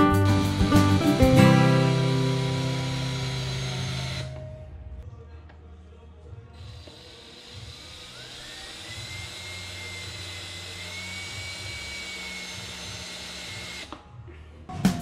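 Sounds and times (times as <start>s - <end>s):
power tool motor whining: 1.8s - 4.4s, 6.6s - 13.9s.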